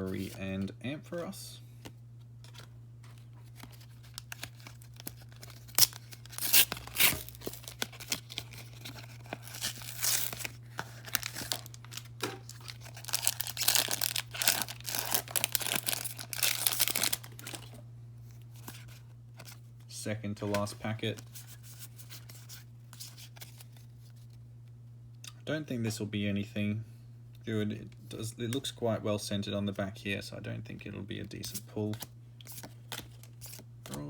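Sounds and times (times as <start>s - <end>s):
steady low hum: 0.0s - 34.0s
foil wrapper crinkling and tearing: 3.4s - 17.8s.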